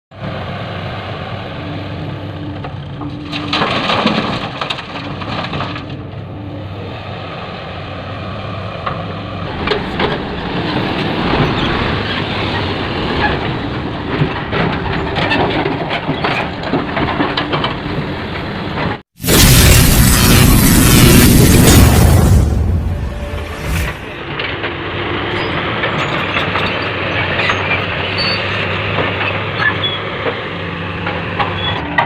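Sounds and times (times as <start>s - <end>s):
rocks clattering and crunching: 3.0s - 6.0s.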